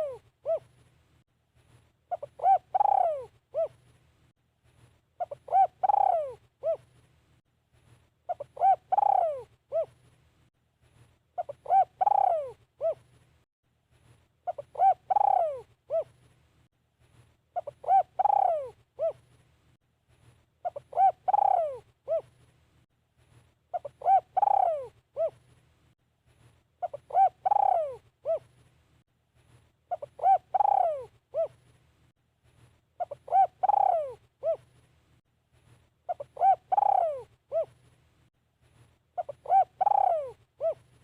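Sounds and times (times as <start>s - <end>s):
dove cooing: 0.0s - 0.8s, 2.1s - 3.8s, 5.2s - 6.9s, 8.3s - 10.0s, 11.4s - 13.1s, 14.4s - 16.2s, 17.6s - 19.2s, 20.6s - 22.3s, 23.7s - 25.4s, 26.8s - 28.5s, 29.9s - 31.6s, 33.0s - 34.7s, 36.1s - 37.8s, 39.2s - 40.9s.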